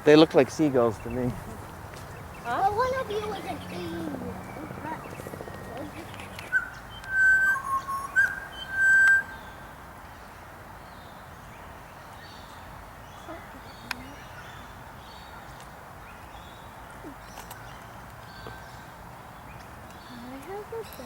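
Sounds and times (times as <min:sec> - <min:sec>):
distant birds chirping: 0:00.0 - 0:21.0
low background noise: 0:00.0 - 0:21.0
bird whistling clear notes: 0:05.9 - 0:09.5.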